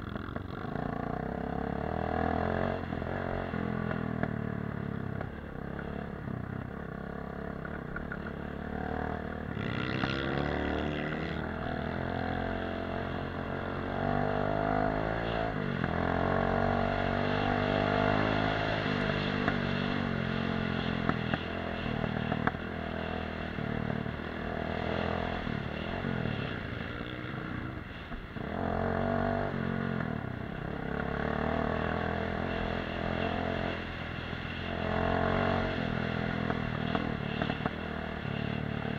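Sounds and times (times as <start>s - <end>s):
dirt bike engine: 0.0s - 38.9s
clatter: 7.5s - 8.6s.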